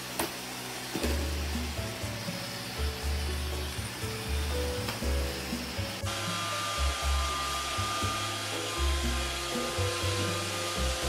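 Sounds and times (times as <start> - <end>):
robot vacuum cleaner whining: 0.0 - 11.0
bossa nova music: 1.0 - 6.1.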